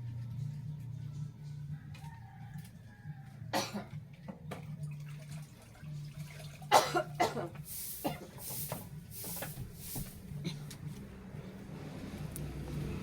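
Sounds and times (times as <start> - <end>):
spray bottle spraying: 7.7 - 10.3.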